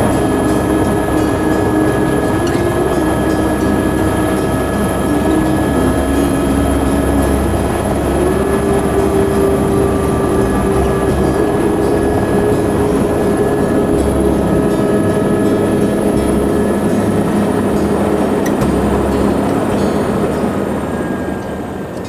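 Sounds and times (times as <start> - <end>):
helicopter rotor and engine drone: 0.0 - 22.0.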